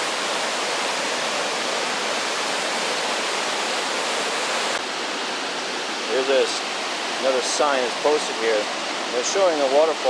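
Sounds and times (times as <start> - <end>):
waterfall crashing: 0.0 - 10.0.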